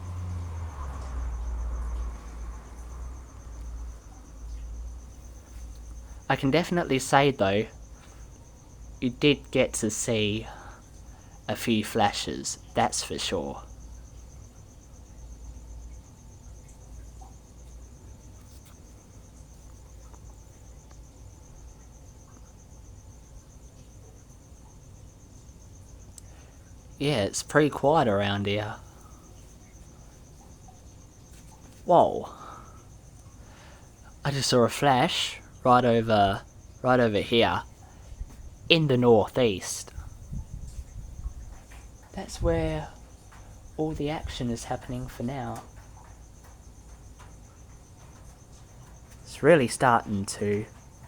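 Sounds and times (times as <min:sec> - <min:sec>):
crickets chirring: 0:00.0 - 0:51.0
faint low rumble: 0:00.0 - 0:51.0.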